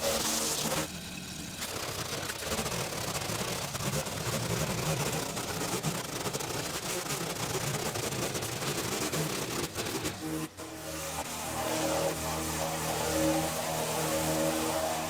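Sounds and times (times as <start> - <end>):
petrol garden tool running: 0.0 - 6.9.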